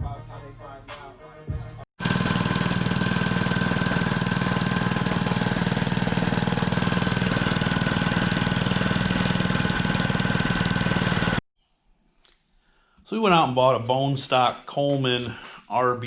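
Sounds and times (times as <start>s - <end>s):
mini bike engine running: 2.0s - 11.4s.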